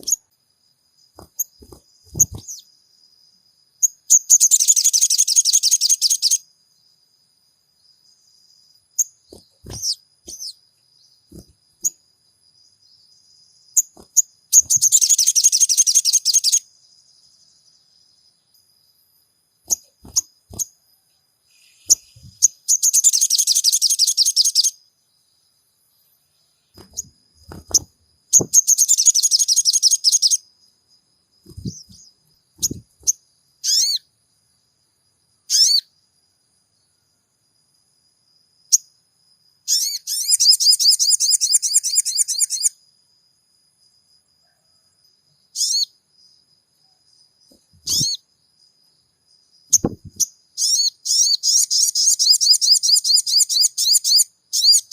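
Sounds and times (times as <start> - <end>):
bird twittering trills: 0.0 - 0.3, 1.0 - 2.8, 3.8 - 6.5, 8.2 - 12.0, 12.6 - 18.3, 19.6 - 20.8, 21.5 - 24.8, 26.3 - 30.5, 31.4 - 34.1, 35.5 - 35.9, 39.7 - 42.8, 45.6 - 46.0, 47.4 - 48.2, 49.7 - 54.9
sharp bird chirps: 0.0 - 7.0, 7.8 - 19.0, 19.6 - 34.2, 35.4 - 36.0, 38.7 - 39.0, 39.6 - 42.8, 45.4 - 48.7, 49.3 - 54.9.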